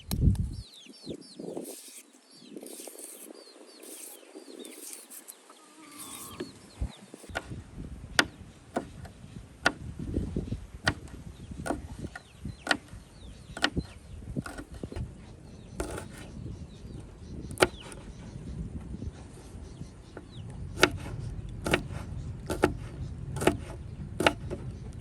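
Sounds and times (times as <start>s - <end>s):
blade chopping wood: 8.2s - 9.0s, 10.9s - 12.8s, 15.8s - 16.2s, 17.5s - 18.0s, 20.8s - 24.6s.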